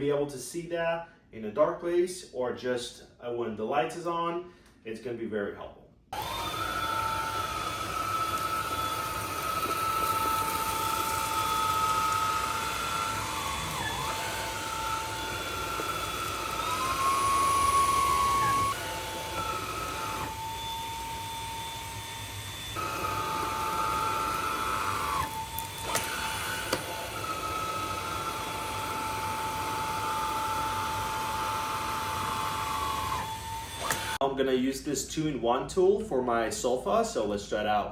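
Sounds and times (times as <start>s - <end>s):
vacuum motor whine: 6.2s - 34.2s.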